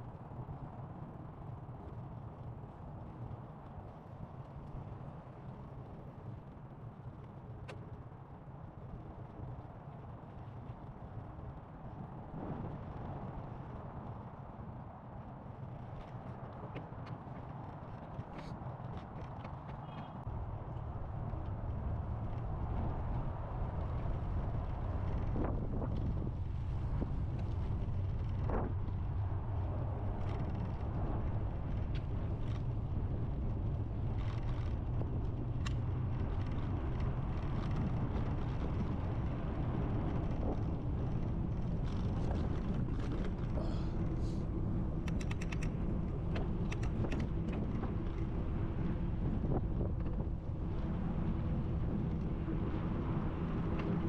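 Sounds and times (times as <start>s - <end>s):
bicycle ride noise: 0.0s - 54.0s
wind buffeting microphone: 0.0s - 54.0s
sharp clicks: 45.0s - 45.8s.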